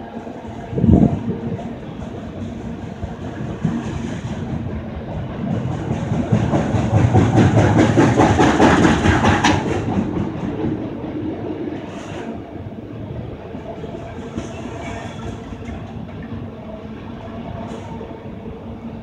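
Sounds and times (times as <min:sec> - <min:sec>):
freight train wheels clacking: 0:01.5 - 0:11.2, 0:13.7 - 0:16.5.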